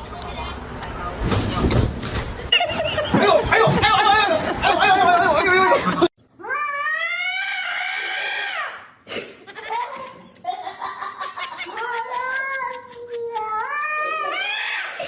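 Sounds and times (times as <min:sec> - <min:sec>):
cat yowling: 0:06.4 - 0:08.7.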